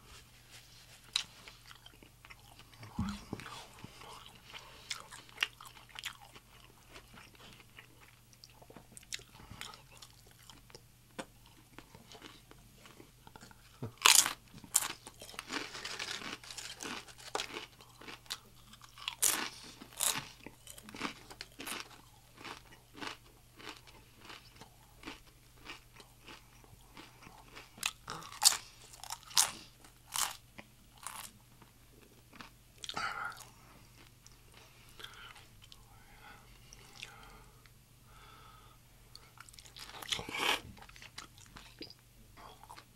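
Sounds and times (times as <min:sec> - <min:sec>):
crunchy chewing: 0:01.0 - 0:31.4, 0:39.1 - 0:42.9.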